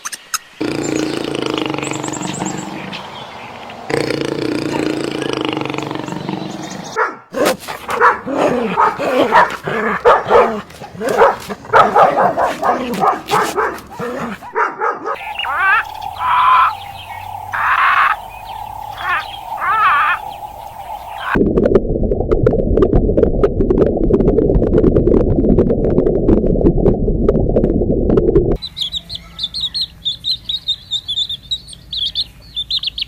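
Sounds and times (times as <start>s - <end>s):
dog barking and yipping: 7.0s - 16.7s.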